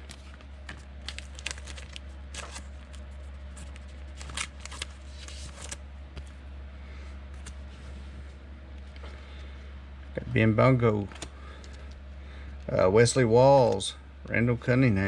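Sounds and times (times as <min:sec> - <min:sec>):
cards rustling and flicking: 0:00.0 - 0:06.4, 0:07.3 - 0:07.8
steady low hum: 0:00.0 - 0:15.0.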